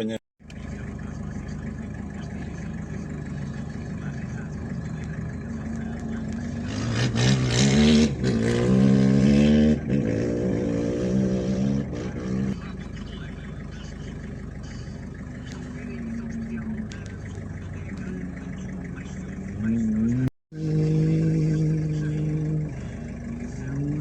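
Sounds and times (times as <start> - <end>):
low steady rumble: 0.4 - 24.0
rally car engine revving past: 4.6 - 12.6, 19.5 - 24.0.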